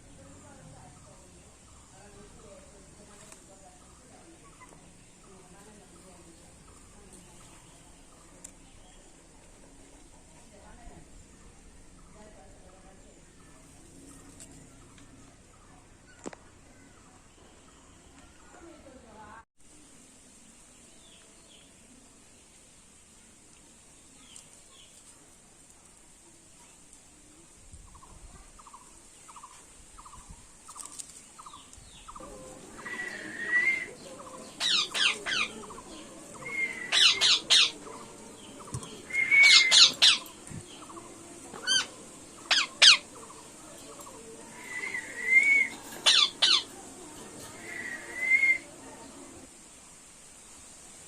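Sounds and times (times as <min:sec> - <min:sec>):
parrot squawking: 0:34.6 - 0:35.6, 0:36.4 - 0:37.8, 0:39.2 - 0:40.3, 0:41.6 - 0:43.1, 0:46.0 - 0:46.7.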